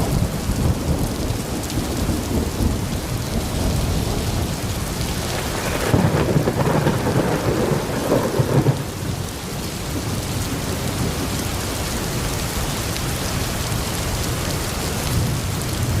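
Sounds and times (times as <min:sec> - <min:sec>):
rumble of thunder: 0:00.0 - 0:11.8
steady rain: 0:00.0 - 0:16.0.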